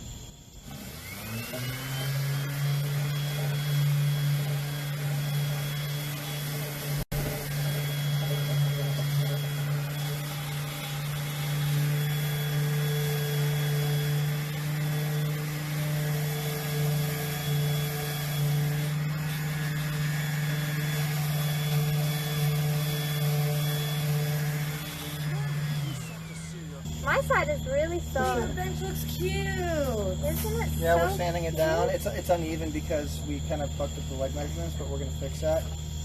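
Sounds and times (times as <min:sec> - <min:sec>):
electric sander on wood: 0:00.1 - 0:36.0.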